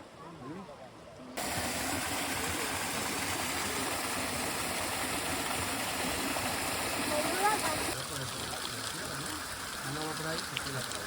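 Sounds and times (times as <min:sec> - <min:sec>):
water rushing down a cascade: 0:01.4 - 0:11.0.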